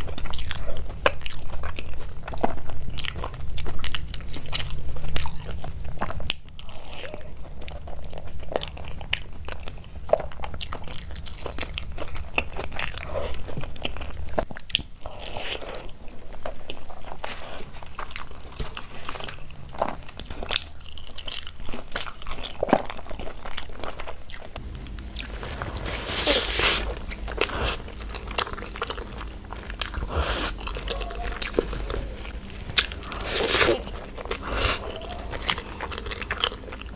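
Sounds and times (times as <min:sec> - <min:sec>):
chewing and crunching: 0:00.0 - 0:36.9
loud noisy burst: 0:24.6 - 0:36.9
wet mouth clicks: 0:24.8 - 0:36.9.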